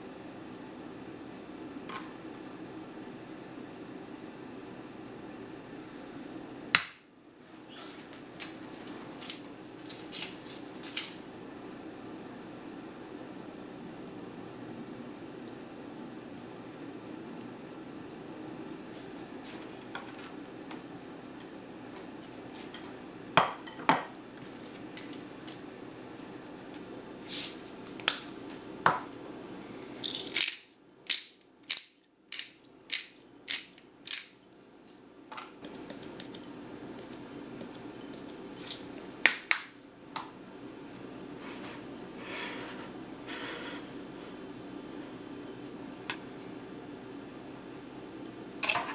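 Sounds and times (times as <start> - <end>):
dishes and cutlery clinking: 35.6 - 39.0.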